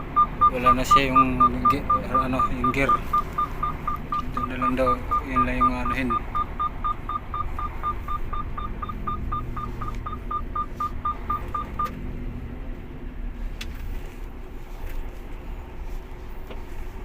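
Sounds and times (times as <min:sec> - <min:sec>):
rapid short warning beeps: 0:00.0 - 0:11.9
truck engine rumble: 0:00.0 - 0:17.0.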